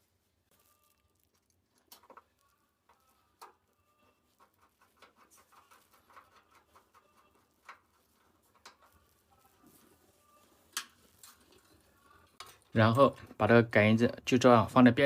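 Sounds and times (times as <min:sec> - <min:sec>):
small clicks of hands working: 0:01.1 - 0:09.3, 0:10.6 - 0:13.3.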